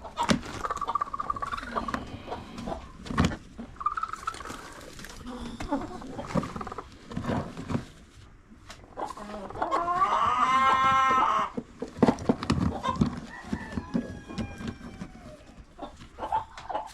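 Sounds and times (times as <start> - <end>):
chickens clucking: 0.0 - 8.0, 8.6 - 16.9
rooster crowing: 13.2 - 15.4.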